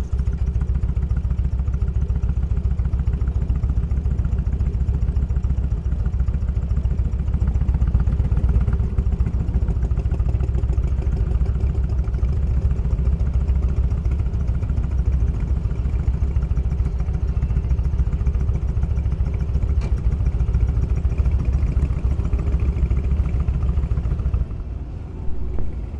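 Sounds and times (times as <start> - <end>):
motorcycle engine running: 0.0 - 24.6.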